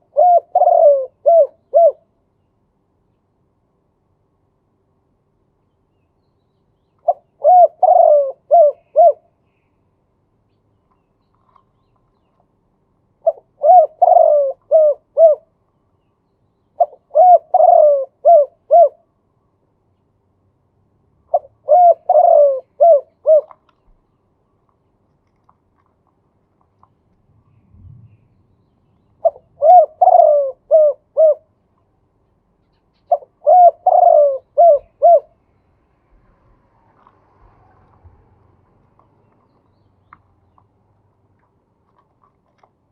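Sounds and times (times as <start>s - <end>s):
dove cooing: 0.0s - 2.1s, 7.0s - 9.3s, 13.2s - 15.5s, 16.8s - 19.0s, 21.3s - 23.6s, 29.2s - 31.6s, 33.0s - 35.4s.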